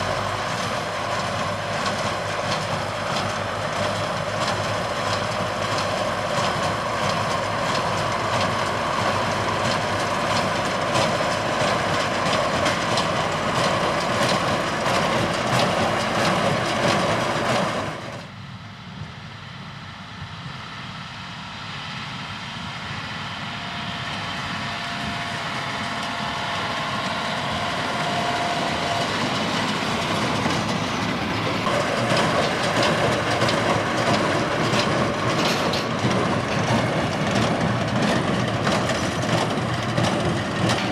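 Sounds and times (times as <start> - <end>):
hay baler machine noise: 0.0 - 18.4, 22.6 - 40.9
rhythmic clacking: 27.6 - 40.9.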